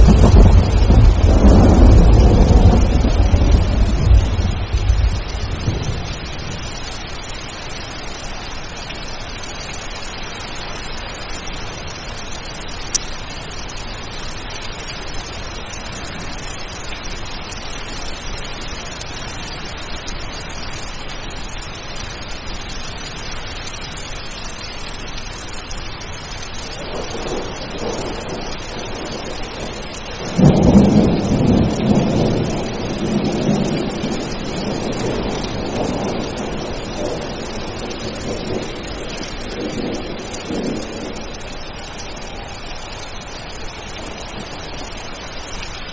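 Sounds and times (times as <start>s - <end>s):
loud thunderclap: 0.0s - 6.7s, 26.8s - 41.4s
thunder rumbling: 0.0s - 7.2s, 26.7s - 45.6s
steady rain falling: 0.0s - 45.9s.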